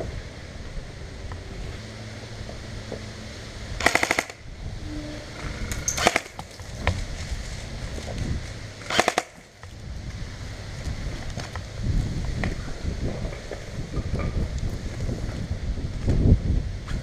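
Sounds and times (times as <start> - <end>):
wind noise on microphone: 0.0 - 17.0
airsoft rifle firing bursts: 3.8 - 4.4, 6.0 - 6.4, 8.9 - 9.4.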